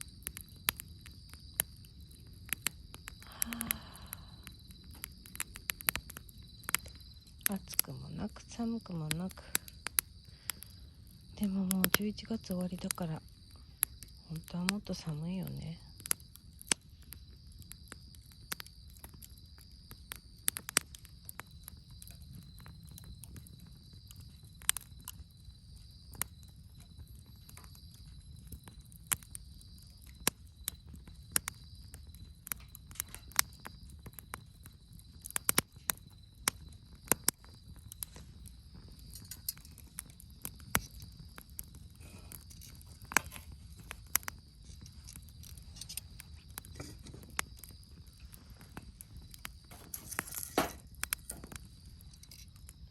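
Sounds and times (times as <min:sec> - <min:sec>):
campfire crackling and popping: 0:00.0 - 0:52.9
low rush of burning fire: 0:00.0 - 0:52.9.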